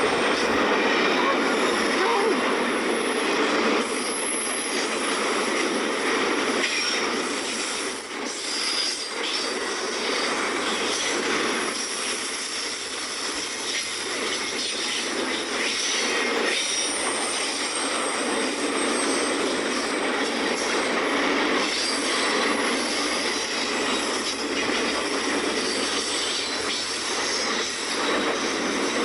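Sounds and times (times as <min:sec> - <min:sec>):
freight train wheels on rails: 0:00.0 - 0:29.0.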